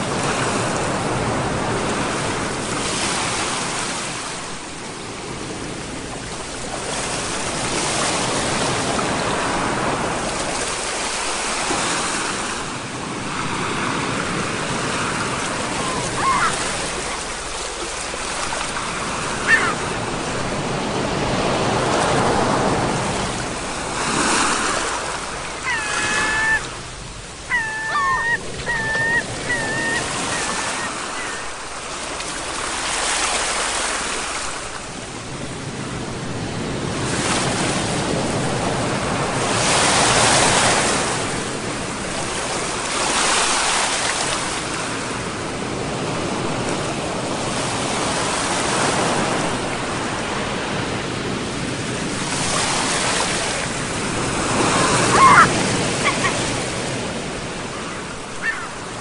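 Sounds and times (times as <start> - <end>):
sea waves breaking on shore: 0.0 - 59.0
bird calling: 15.6 - 17.3, 18.7 - 20.1, 24.8 - 31.8, 54.5 - 56.6, 57.6 - 59.0.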